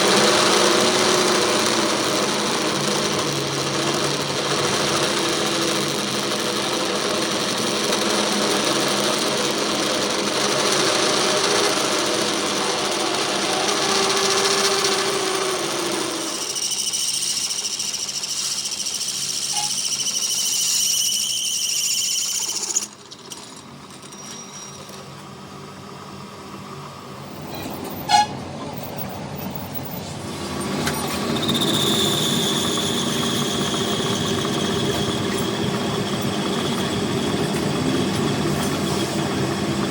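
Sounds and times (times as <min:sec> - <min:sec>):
workshop machinery running: 0:00.0 - 0:39.9.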